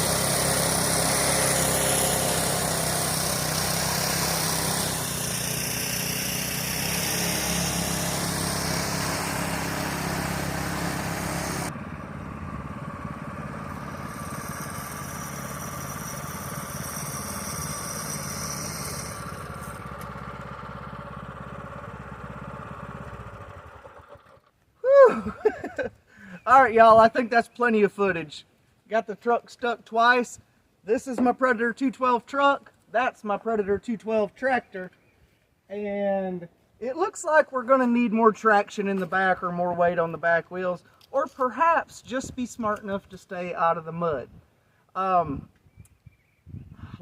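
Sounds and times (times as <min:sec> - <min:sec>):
single-cylinder engine running: 0:00.0 - 0:24.6.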